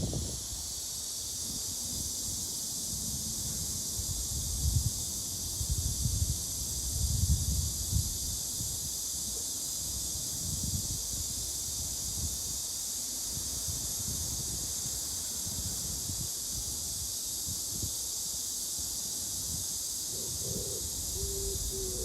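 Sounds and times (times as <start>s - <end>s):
high-pitched outdoor hiss: 0.0s - 22.0s
low rumbling wind buffets: 20.2s - 22.0s.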